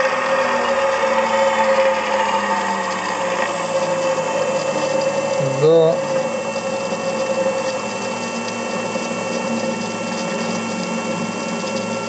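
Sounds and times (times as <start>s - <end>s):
electric motor humming: 0.0s - 12.0s
thin high whine: 2.9s - 12.0s.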